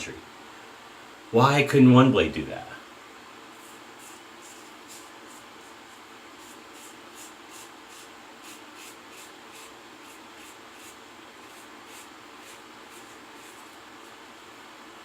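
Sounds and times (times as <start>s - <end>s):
razor scraping stubble: 3.5s - 14.2s.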